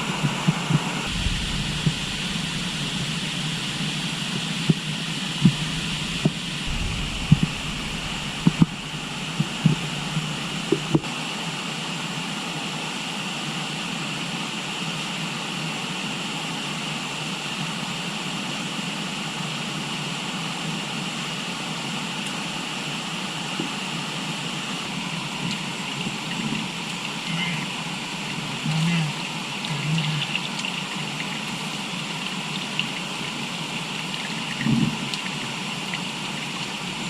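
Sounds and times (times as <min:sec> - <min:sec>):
river water flowing: 0:00.0 - 0:12.3, 0:22.4 - 0:37.0.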